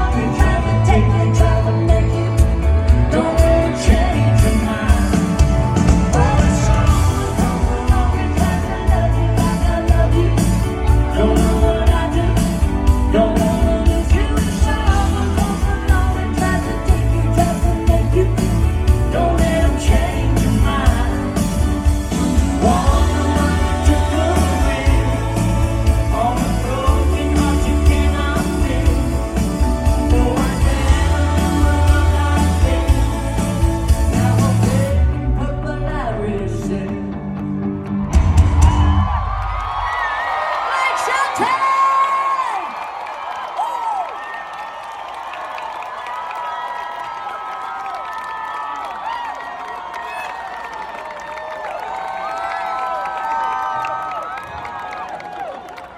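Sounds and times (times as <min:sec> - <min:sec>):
person singing: 0:00.0 - 0:37.4
steady bass line: 0:00.0 - 0:39.4
guitar: 0:00.0 - 0:39.8
live pop-country band: 0:00.0 - 0:40.2
drums: 0:00.0 - 0:42.7.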